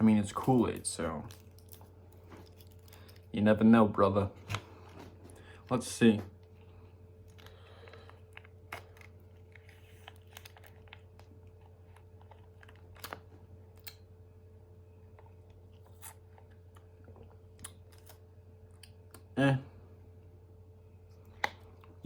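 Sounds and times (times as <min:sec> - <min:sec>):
low steady hum: 0:00.0 - 0:22.0
plastic pouch crinkling: 0:07.2 - 0:13.3.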